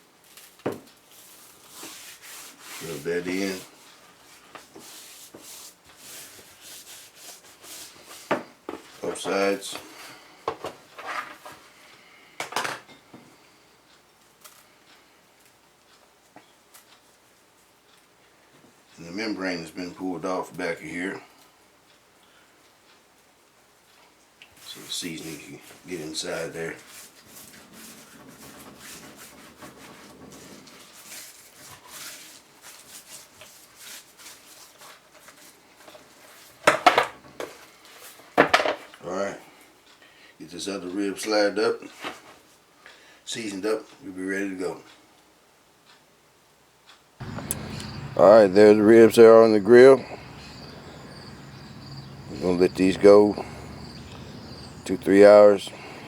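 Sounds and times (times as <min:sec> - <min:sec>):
hands rubbing meat in a pan: 0:01.1 - 0:08.3, 0:24.6 - 0:36.6.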